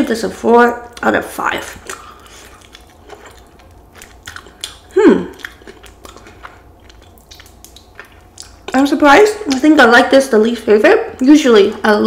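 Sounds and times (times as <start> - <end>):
crunchy chewing: 0.9 - 8.9.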